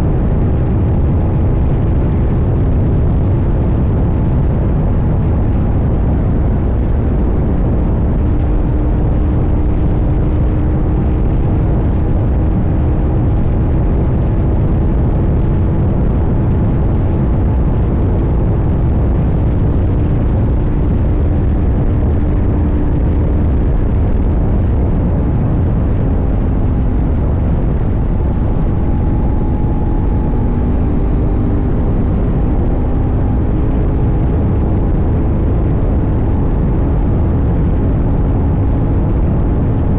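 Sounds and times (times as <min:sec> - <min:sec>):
heavy wind: 0:00.0 - 0:39.9
road rumble: 0:00.0 - 0:39.9
motorcycle engine cruising: 0:19.4 - 0:37.1.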